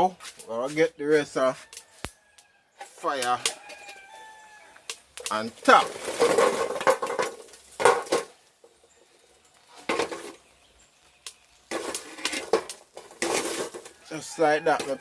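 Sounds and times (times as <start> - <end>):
coals scraped on metal lid: 5.3 - 10.6, 11.6 - 15.0.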